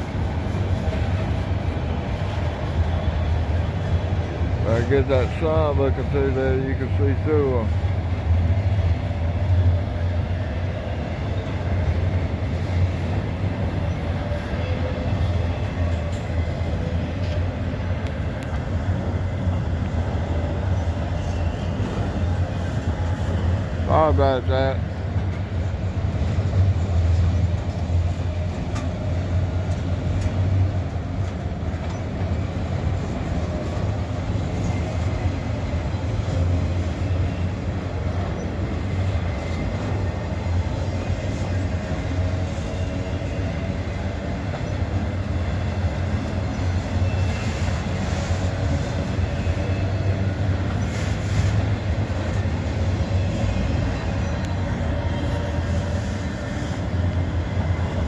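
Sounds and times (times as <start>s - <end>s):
train wheels rumbling on rails: 0.0s - 58.0s
faint wheel squeal: 46.4s - 52.4s.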